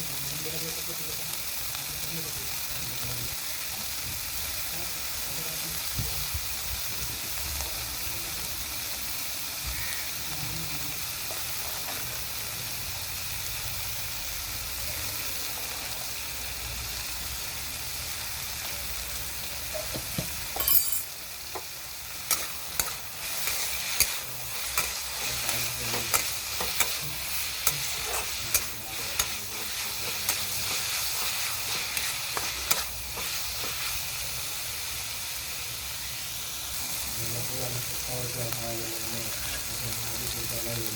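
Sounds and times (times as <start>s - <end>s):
food sizzling in oil: 0.0s - 40.9s
spatula knocking and scraping pan: 19.7s - 20.7s, 21.5s - 34.0s.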